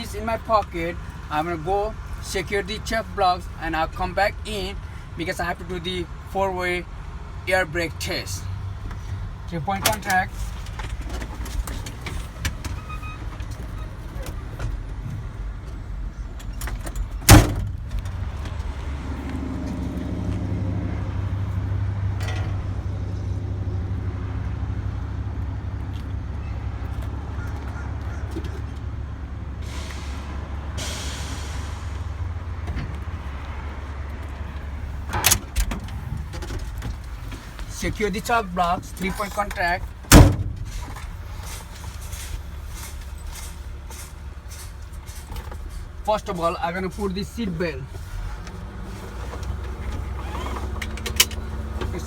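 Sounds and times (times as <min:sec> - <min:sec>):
truck door slamming: 0:16.4 - 0:18.6, 0:35.0 - 0:37.0, 0:40.0 - 0:41.1.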